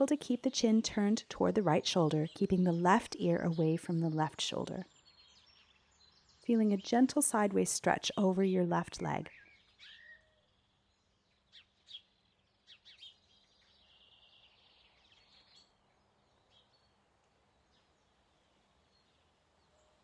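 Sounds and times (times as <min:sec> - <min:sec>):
faint bird chirps: 0:09.1 - 0:18.2.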